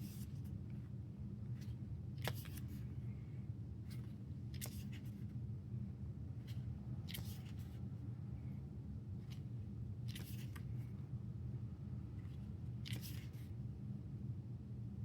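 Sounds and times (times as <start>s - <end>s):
paper pages rustling: 1.5s - 2.8s, 3.8s - 5.3s, 6.5s - 7.8s, 10.1s - 10.8s, 12.2s - 13.5s.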